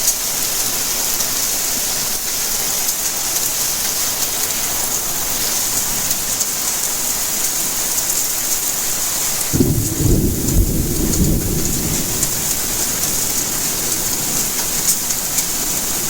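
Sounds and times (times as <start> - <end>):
steady rainfall hiss: 0.0 - 16.0
thunder rumble: 9.5 - 16.0.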